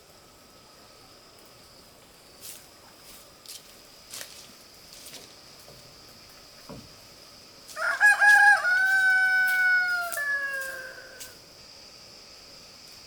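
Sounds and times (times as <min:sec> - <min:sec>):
rooster crowing: 0:07.7 - 0:11.4.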